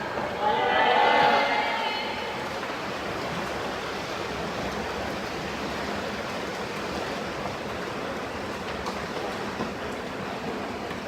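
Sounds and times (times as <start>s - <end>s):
water splashing in a pool: 0.0s - 11.0s.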